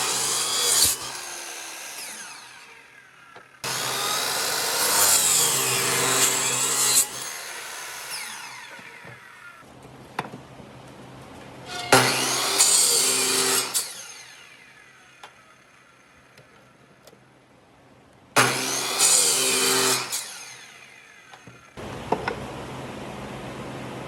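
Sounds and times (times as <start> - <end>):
power tool working wood: 0.0 - 9.6, 11.8 - 15.4, 18.4 - 21.8.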